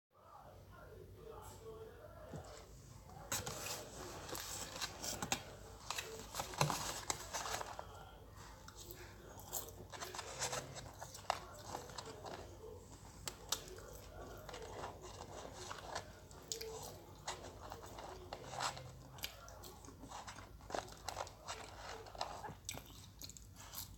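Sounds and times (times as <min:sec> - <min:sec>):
paper carton rustling: 0:03.2 - 0:08.0, 0:09.7 - 0:19.1
chewing fries with mouth clicks: 0:16.1 - 0:21.5, 0:22.3 - 0:23.9.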